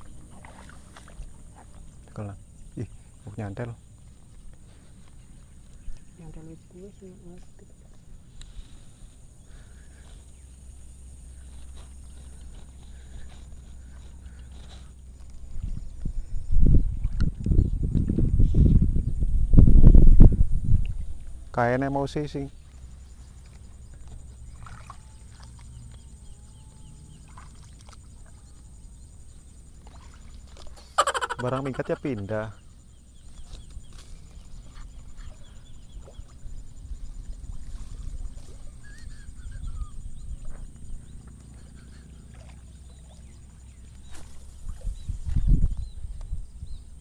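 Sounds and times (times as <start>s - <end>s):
small birds chirping: 1.5s - 16.3s, 21.4s - 47.0s
wind rumble on microphone: 11.6s - 21.8s, 33.1s - 41.6s, 43.2s - 47.0s.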